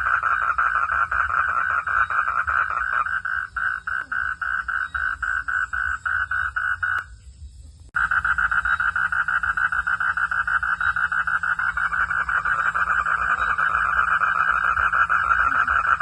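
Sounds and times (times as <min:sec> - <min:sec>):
frog calling in rapid pulses: 0:00.0 - 0:07.1, 0:08.0 - 0:16.0.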